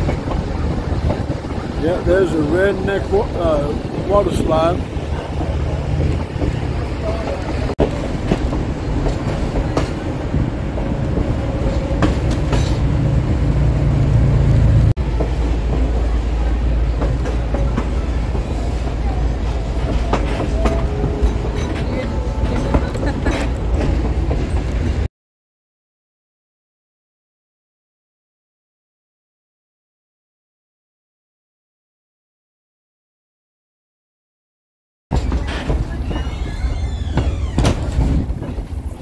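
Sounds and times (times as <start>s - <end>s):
train car rumbling on track: 0.0s - 25.1s, 35.1s - 39.0s.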